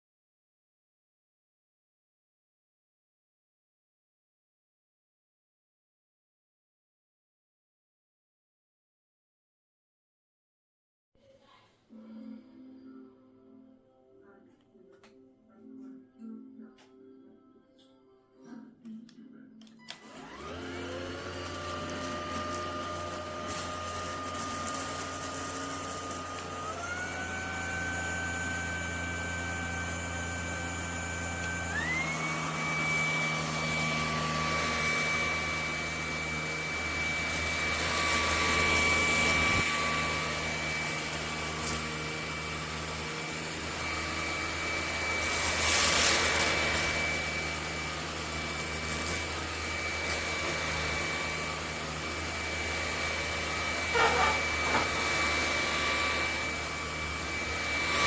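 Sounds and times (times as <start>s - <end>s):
vacuum motor whine: 19.8s - 58.0s.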